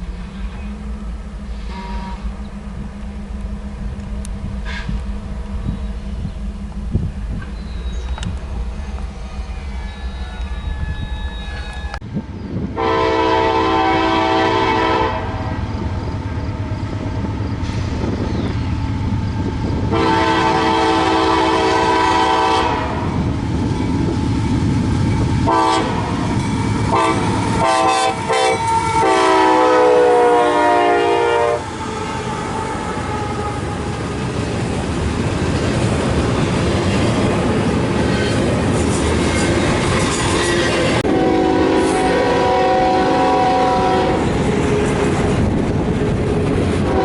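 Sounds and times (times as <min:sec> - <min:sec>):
passing train rumble: 0:00.0 - 0:47.0
locomotive air horn blasts: 0:01.5 - 0:02.4, 0:04.6 - 0:05.1, 0:12.8 - 0:15.7, 0:19.8 - 0:23.2, 0:25.4 - 0:33.9, 0:40.4 - 0:44.3, 0:46.8 - 0:47.0.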